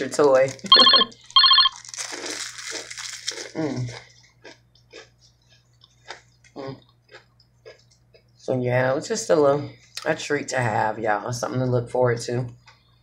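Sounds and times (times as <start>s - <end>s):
wrapper rustle: 0.0s - 4.0s
crisp cookie crunches: 0.0s - 7.9s.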